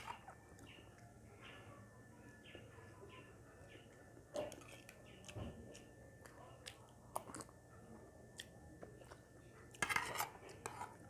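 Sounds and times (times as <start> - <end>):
person chewing food: 4.3 - 7.6, 8.4 - 11.0.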